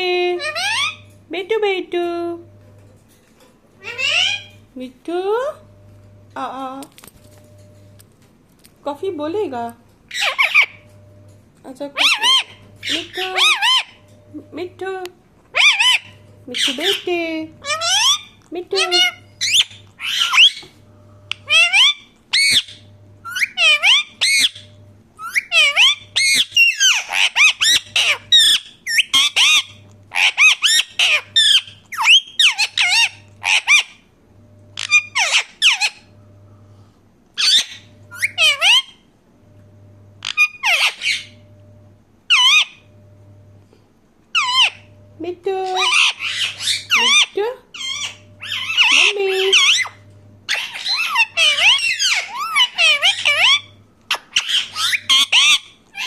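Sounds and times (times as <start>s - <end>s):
parrot squawking and chattering: 0.3s - 1.2s, 3.8s - 4.6s, 10.1s - 10.8s, 12.0s - 14.0s, 15.5s - 20.7s, 21.3s - 34.0s, 34.8s - 36.1s, 37.4s - 39.1s, 40.2s - 41.4s, 42.3s - 42.9s, 44.3s - 44.9s, 45.7s - 56.0s.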